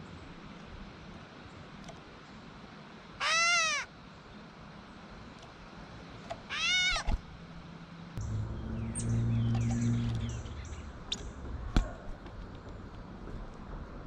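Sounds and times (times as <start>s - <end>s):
bird mew call: 3.2s - 3.9s, 6.5s - 7.1s
low steady hum: 7.1s - 14.0s.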